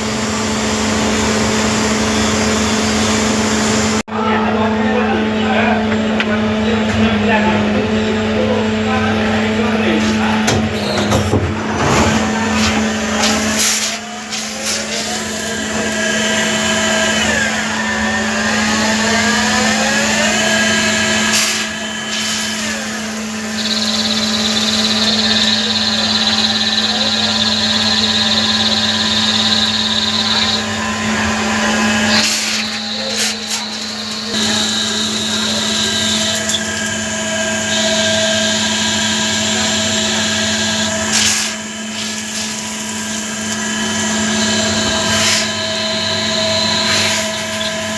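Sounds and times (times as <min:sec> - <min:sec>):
high-pitched whine: 0:00.0 - 0:47.9
machine tool motor hum: 0:10.1 - 0:47.9.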